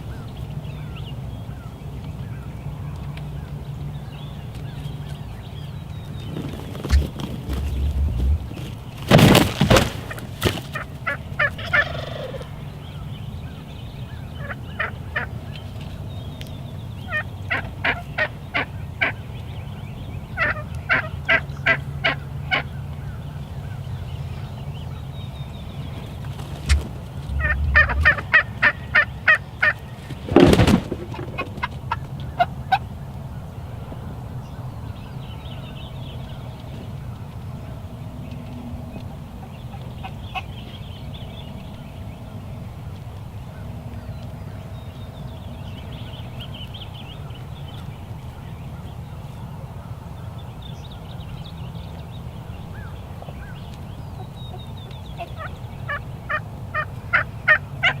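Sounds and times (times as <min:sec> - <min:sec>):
turkey gobbling: 0:06.4 - 0:12.6, 0:14.4 - 0:15.4, 0:17.1 - 0:19.2, 0:20.4 - 0:22.7, 0:26.2 - 0:32.8, 0:55.2 - 0:58.0
turkey yelps: 0:11.0 - 0:12.5, 0:26.4 - 0:29.8, 0:55.3 - 0:58.0.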